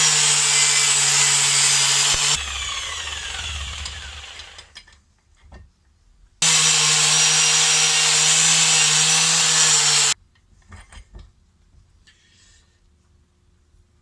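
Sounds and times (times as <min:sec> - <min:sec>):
power tool grinding: 0:00.0 - 0:04.8, 0:06.4 - 0:10.2.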